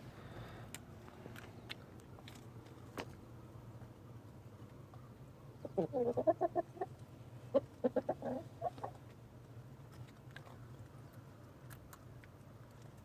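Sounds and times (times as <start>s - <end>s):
chicken clucking: 5.6s - 9.0s.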